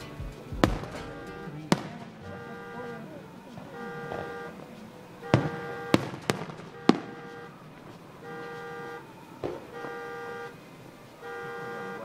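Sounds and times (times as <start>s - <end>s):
car horn honking: 0.0s - 12.0s
fireworks bursting with bangs: 0.0s - 12.0s.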